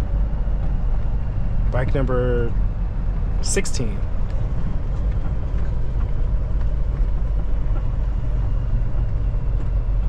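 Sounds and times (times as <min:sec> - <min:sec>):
truck diesel engine rumble: 0:00.0 - 0:10.0.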